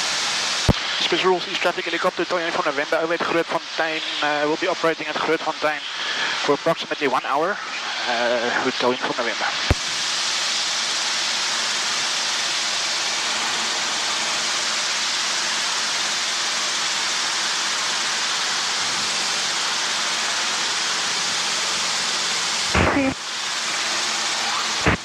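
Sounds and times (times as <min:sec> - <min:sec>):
headset audio hiss: 0:00.0 - 0:25.0.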